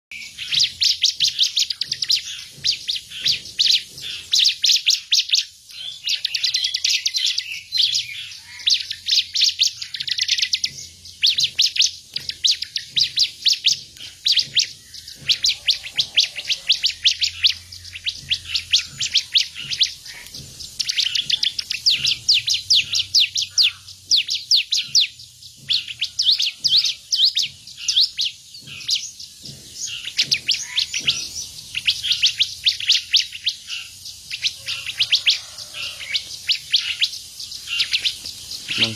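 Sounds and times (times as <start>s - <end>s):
songbird singing rapid notes: 0.1s - 38.9s.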